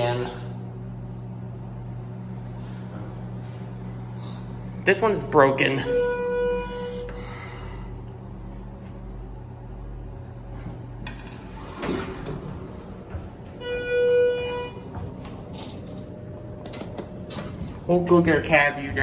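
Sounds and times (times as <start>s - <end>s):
low steady hum: 0.0s - 19.0s
elevator arrival chime: 5.6s - 7.6s, 12.3s - 17.5s.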